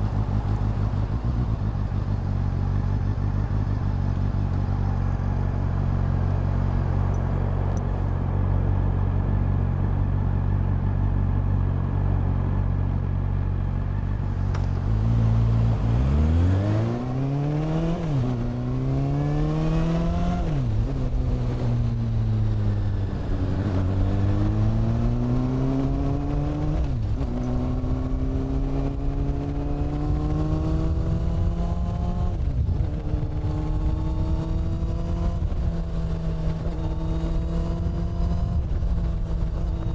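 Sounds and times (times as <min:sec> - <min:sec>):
motorcycle engine revving through gears: 0:13.7 - 0:39.9.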